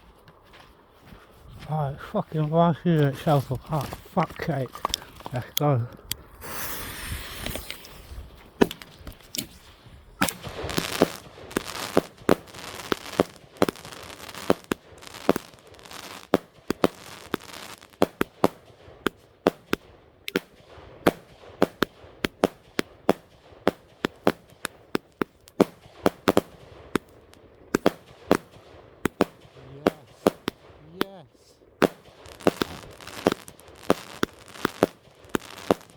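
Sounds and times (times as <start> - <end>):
fireworks bangs: 1.6 - 35.9
fireworks hissing: 6.2 - 19.7, 23.7 - 35.9.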